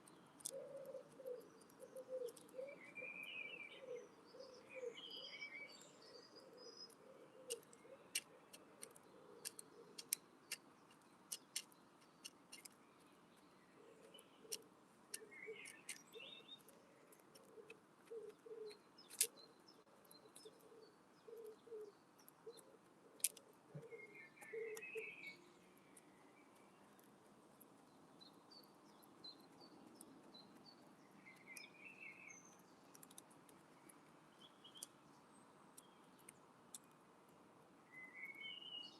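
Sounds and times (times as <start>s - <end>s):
bird chirps: 0.0s - 22.8s, 23.8s - 26.8s, 28.2s - 32.7s, 37.9s - 38.9s
beak pecking clicks: 7.4s - 12.8s, 14.5s - 18.2s.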